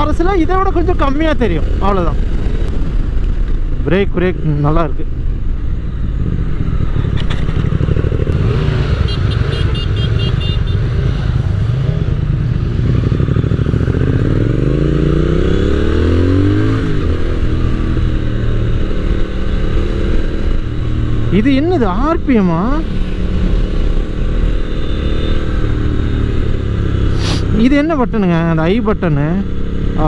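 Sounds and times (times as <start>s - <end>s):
motorcycle engine revving: 6.2s - 30.0s.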